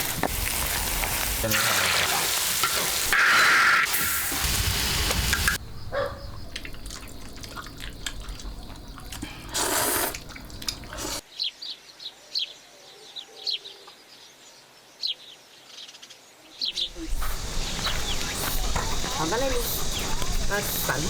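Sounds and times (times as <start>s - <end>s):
food sizzling in a pan: 0.0s - 5.6s
water dripping: 5.1s - 11.2s
small birds chirping: 5.2s - 15.9s, 16.5s - 21.0s.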